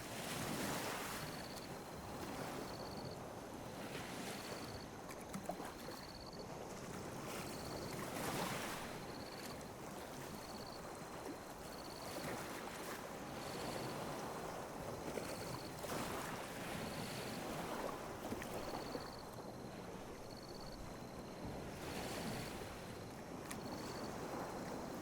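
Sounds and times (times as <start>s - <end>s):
sea waves lapping on a beach: 0.0s - 25.0s.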